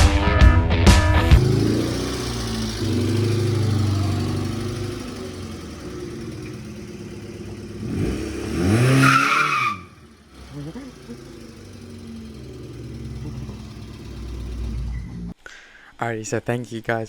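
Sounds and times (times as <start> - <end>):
car engine running and revving: 1.3 - 15.4.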